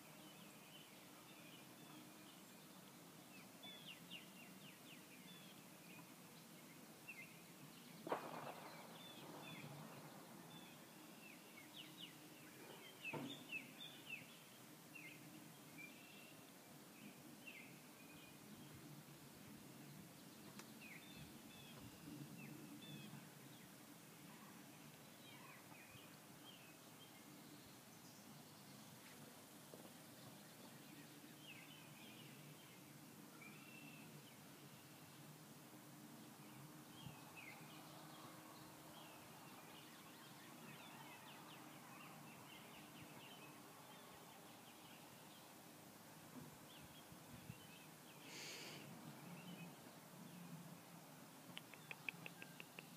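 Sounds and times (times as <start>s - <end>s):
low background hiss: 0.0s - 52.9s
songbirds chirping: 0.0s - 52.9s
faint click: 20.5s - 20.7s, 51.5s - 52.9s.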